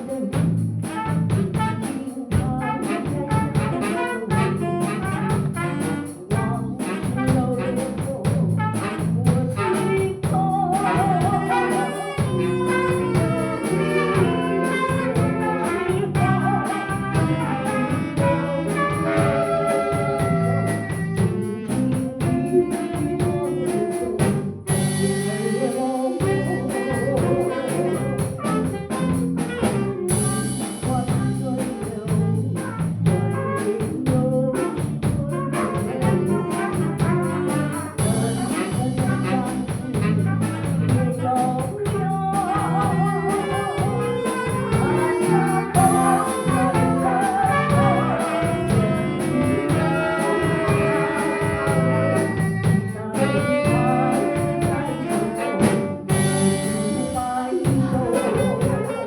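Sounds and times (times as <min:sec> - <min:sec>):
group playing melody over beat: 0:00.1 - 0:31.0, 0:34.8 - 0:59.0.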